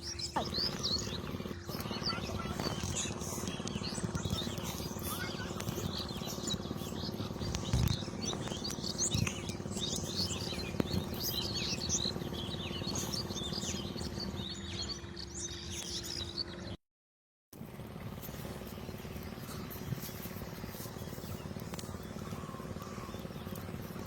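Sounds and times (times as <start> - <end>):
small birds chirping: 0.0 - 16.8, 18.2 - 24.0
steady low hum: 0.0 - 16.8, 17.6 - 24.0.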